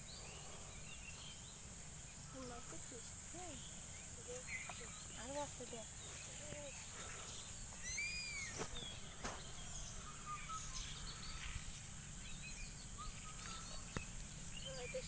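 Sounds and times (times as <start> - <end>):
birds chirping: 0.0 - 15.0
high-pitched insect drone: 0.0 - 15.0.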